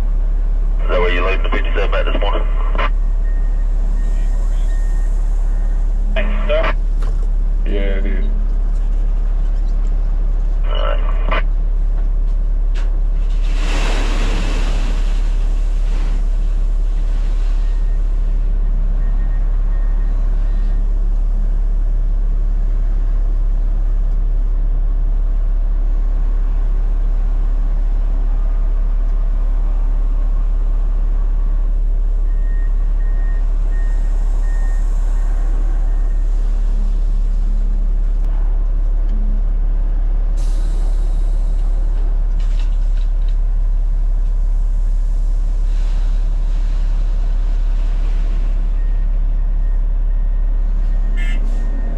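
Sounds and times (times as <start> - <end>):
truck diesel engine running: 0.0 - 51.9
air hiss: 40.4 - 42.0.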